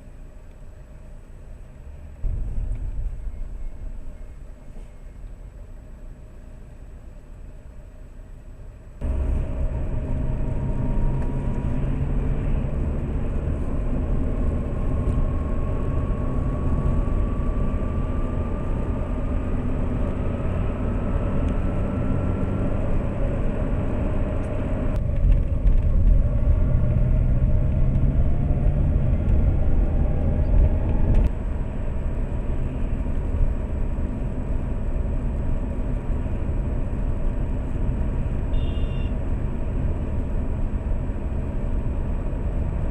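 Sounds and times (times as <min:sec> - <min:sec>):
car engine and road rumble: 0:00.0 - 0:42.9
faint rising whine: 0:01.8 - 0:06.8, 0:09.0 - 0:37.8.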